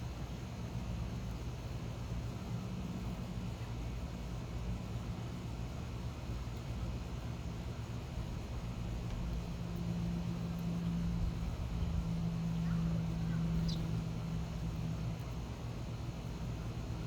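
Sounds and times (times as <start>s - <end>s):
short high bird chirp: 13.6s - 13.9s.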